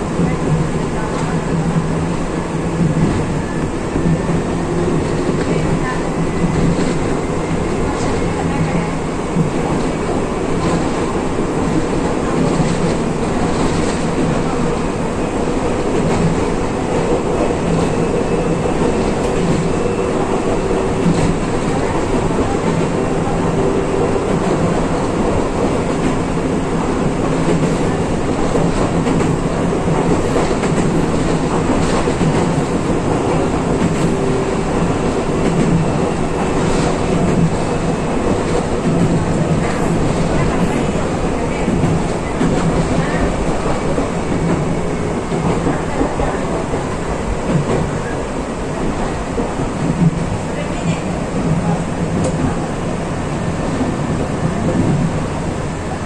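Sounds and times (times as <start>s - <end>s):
train wheels rumbling on track: 0.0s - 56.0s
faint rail clicks: 49.4s - 52.6s.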